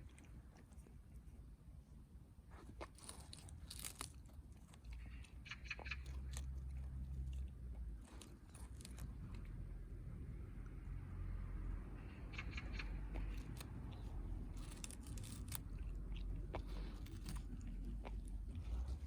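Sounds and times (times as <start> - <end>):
dog chewing grass: 2.5 - 10.4, 12.8 - 19.0.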